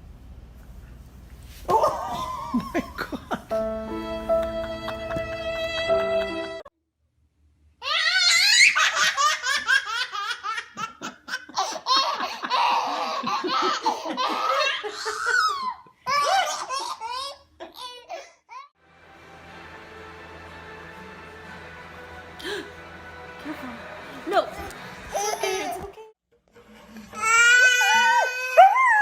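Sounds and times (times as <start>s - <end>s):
baby laughing: 7.8s - 18.7s, 25.1s - 26.1s.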